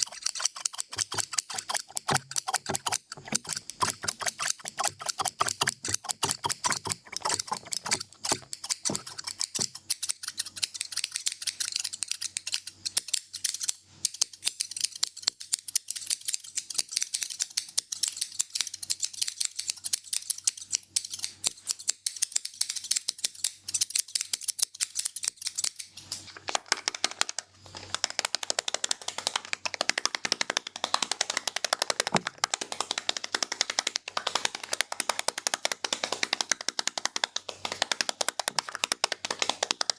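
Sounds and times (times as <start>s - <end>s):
scissors snipping: 0.0s - 12.6s, 34.9s - 39.9s.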